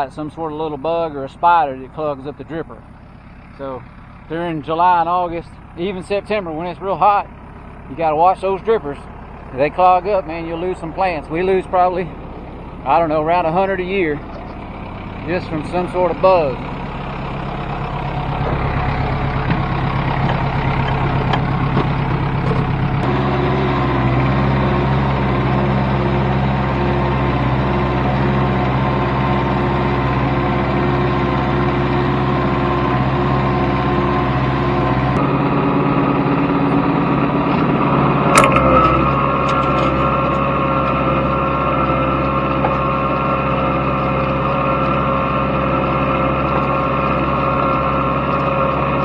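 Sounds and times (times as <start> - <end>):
tractor engine running: 0.0 - 49.0
sharp click: 38.3 - 39.0.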